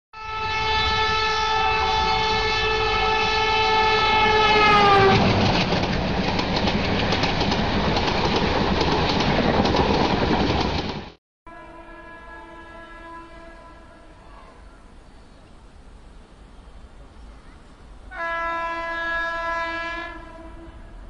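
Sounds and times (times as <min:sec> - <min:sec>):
train air horn blast: 0:00.2 - 0:05.4, 0:11.5 - 0:14.7, 0:18.1 - 0:21.0
rumble of train coaches: 0:00.2 - 0:21.0
wheels clicking over rail joints: 0:05.1 - 0:11.2.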